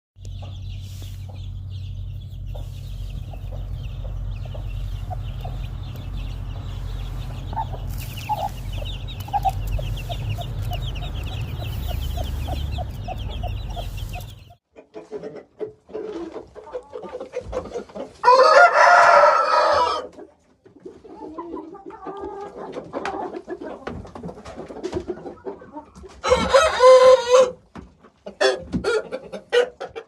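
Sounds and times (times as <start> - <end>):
chicks peeping: 0.2 - 14.6
steady low hum: 0.2 - 14.6
hen clucking: 0.2 - 18.3.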